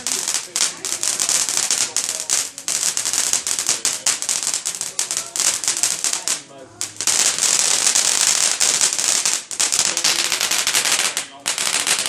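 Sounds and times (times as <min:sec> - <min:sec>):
fireworks crackling: 0:00.0 - 0:12.0.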